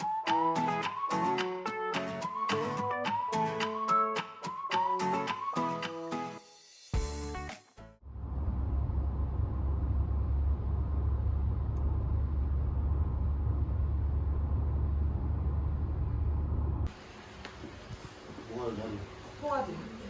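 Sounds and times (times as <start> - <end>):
steady low rumble: 8.0 - 16.9.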